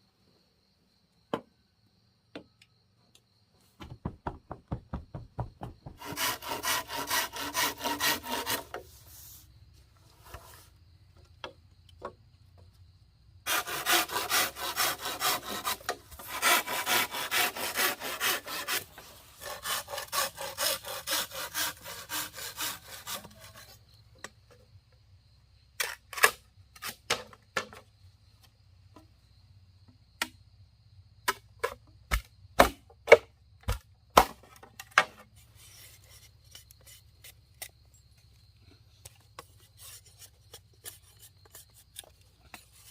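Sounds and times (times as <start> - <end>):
knocks and taps on wood: 3.8 - 6.0
hand saw rasping through wood: 4.9 - 8.9, 13.5 - 23.8.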